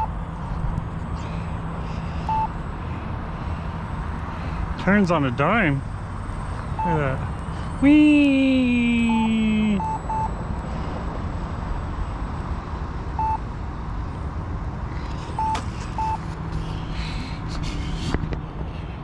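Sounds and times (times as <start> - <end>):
low steady hum: 0.0 - 19.0
short electronic beeps: 2.3 - 2.5, 6.8 - 7.2, 8.8 - 10.4, 13.2 - 13.4, 15.4 - 16.2.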